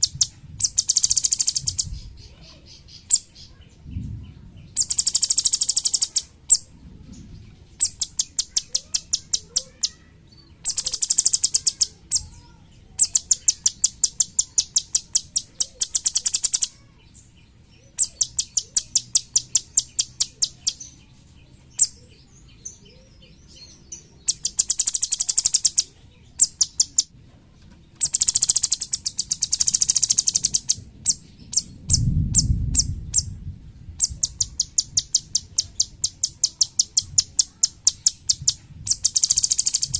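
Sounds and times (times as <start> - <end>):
bird singing rattling trills: 0.0 - 27.1, 27.9 - 39.9
low dull rumble: 3.7 - 4.8, 30.8 - 34.6.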